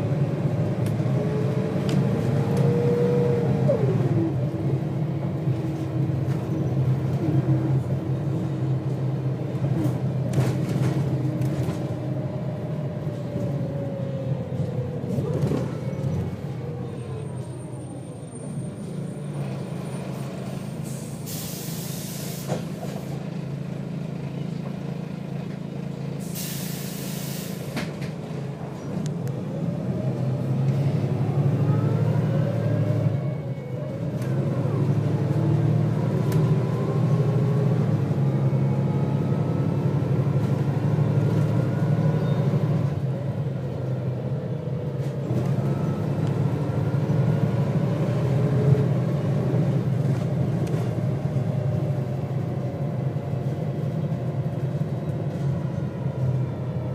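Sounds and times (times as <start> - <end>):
bus diesel engine: 0.0 - 56.9
air brake hiss: 20.7 - 23.2, 26.2 - 27.9.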